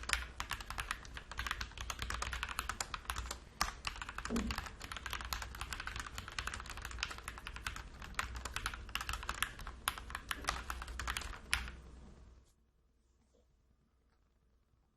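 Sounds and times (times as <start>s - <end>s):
mechanical keyboard typing: 0.0s - 11.8s.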